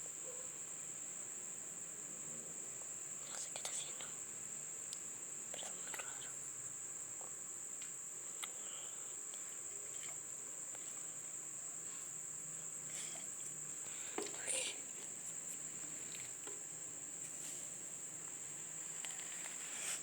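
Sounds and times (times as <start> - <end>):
crickets trilling: 0.0 - 20.0
faint clicks and rustles: 12.9 - 20.0.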